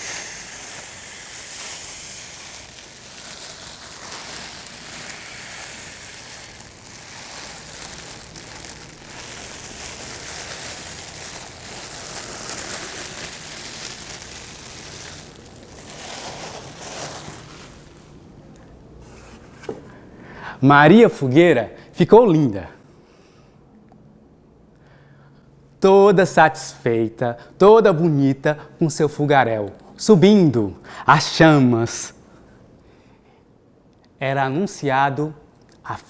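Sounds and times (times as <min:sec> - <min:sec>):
bonfire crackling: 0:00.0 - 0:20.4.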